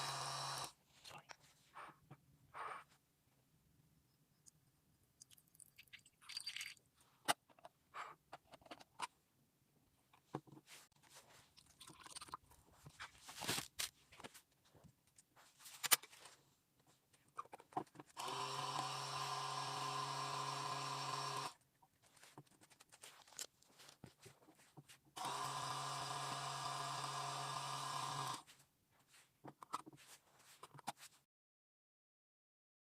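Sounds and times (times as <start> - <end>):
toy motor buzzing: 0.0 - 0.7, 18.2 - 21.6, 25.2 - 28.4.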